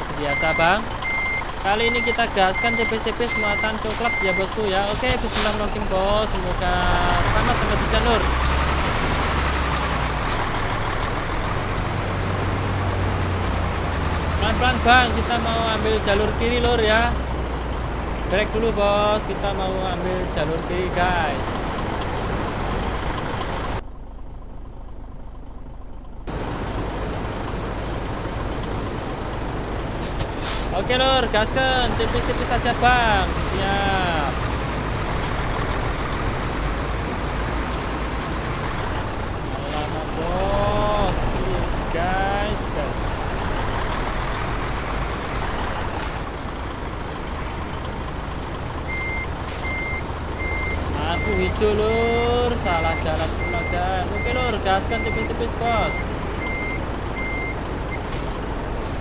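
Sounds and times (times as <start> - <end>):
road noise inside cab: 0.0 - 59.0
truck engine rumble: 0.0 - 59.0
electronic warning beeps: 0.3 - 5.6, 48.9 - 51.7, 52.3 - 58.1
sharp air hisses: 4.9 - 5.6, 30.0 - 30.8.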